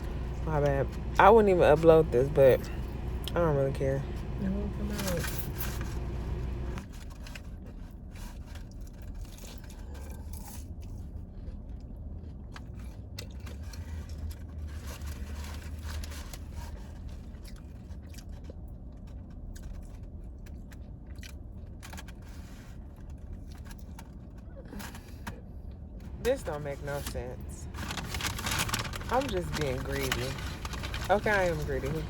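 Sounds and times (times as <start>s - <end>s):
low hum: 0.0s - 7.4s, 22.9s - 32.0s
person chewing food: 8.6s - 14.6s, 17.0s - 22.0s
food wrapper crackling: 26.4s - 32.0s.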